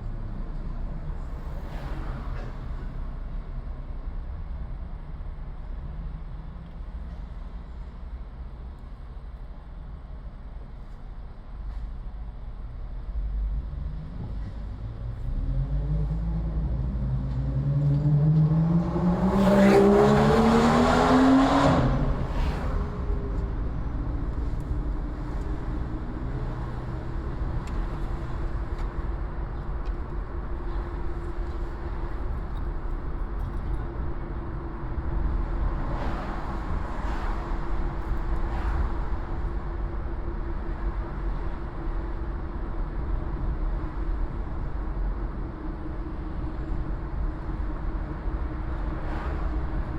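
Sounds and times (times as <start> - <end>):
road rumble: 0.0 - 49.9
car engine accelerating: 14.2 - 33.0.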